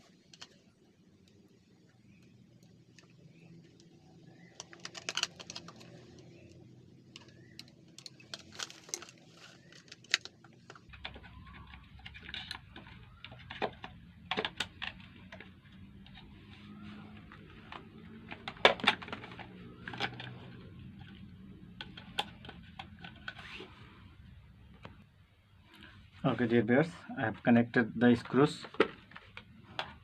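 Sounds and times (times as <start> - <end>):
small parts clicking and tapping: 0.1 - 23.4.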